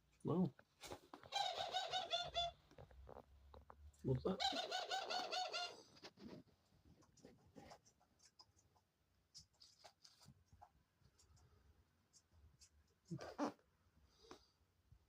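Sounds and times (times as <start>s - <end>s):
dove cooing: 1.3s - 2.6s, 4.4s - 5.8s.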